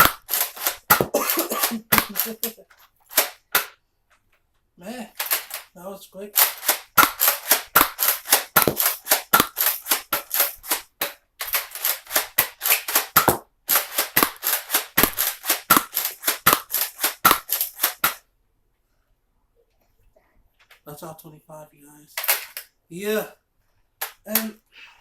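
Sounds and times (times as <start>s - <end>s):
toy dart blaster firing rapidly: 0.0s - 3.8s, 5.2s - 5.7s, 6.4s - 18.2s.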